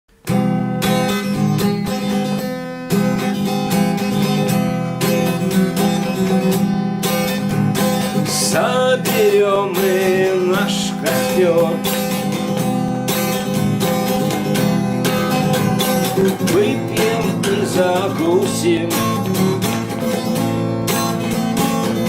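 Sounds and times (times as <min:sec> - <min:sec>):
acoustic guitar strumming: 0:00.1 - 0:22.0
person singing: 0:08.2 - 0:12.3, 0:16.1 - 0:19.6.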